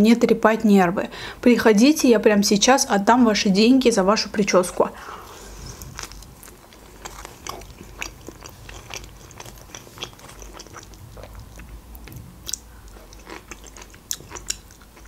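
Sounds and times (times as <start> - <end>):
person chewing food: 5.3 - 15.0
wet mouth clicks: 8.9 - 15.0.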